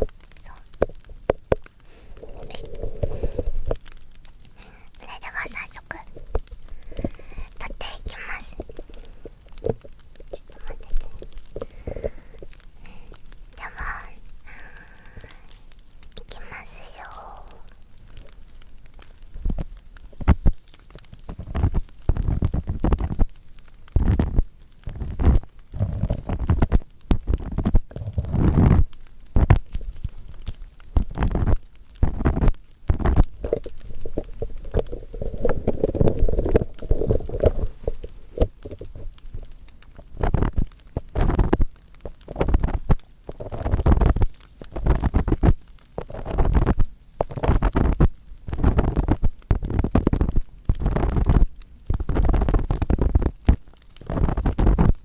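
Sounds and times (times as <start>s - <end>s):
earpick scraping microphone ear: 21.3s - 23.3s, 24.0s - 29.6s, 31.0s - 39.5s, 40.2s - 55.0s.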